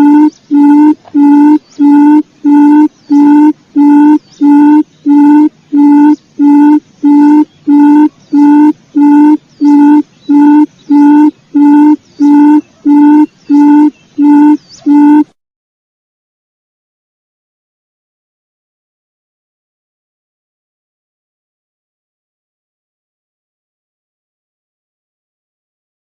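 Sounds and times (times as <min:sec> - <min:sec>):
quail call short low notes: 0:00.0 - 0:15.3.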